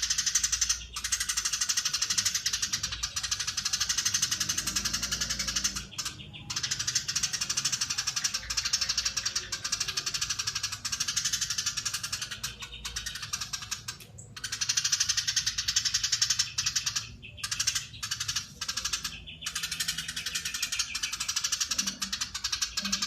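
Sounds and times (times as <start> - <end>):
sparrow chattering: 0.0 - 23.0.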